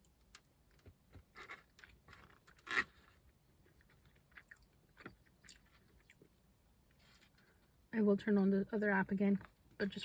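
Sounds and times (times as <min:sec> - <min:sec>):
faint crunching and scraping: 0:00.0 - 0:07.9.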